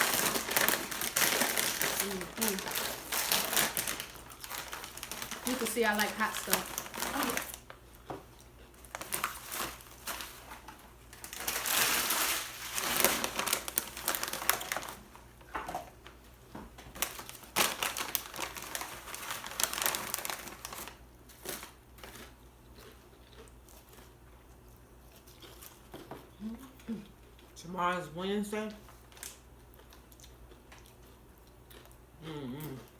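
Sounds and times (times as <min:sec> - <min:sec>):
plastic bag crinkling: 0:00.0 - 0:07.8, 0:08.7 - 0:15.2, 0:16.9 - 0:22.3
crackles and crunches: 0:00.0 - 0:15.2, 0:16.8 - 0:26.7, 0:28.9 - 0:32.9.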